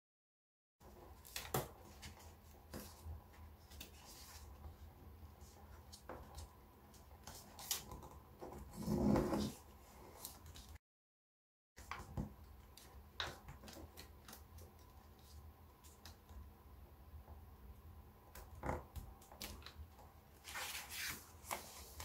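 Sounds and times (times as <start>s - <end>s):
paper rubbing and crinkling: 20.4s - 22.0s
paper rustle: 20.4s - 22.0s.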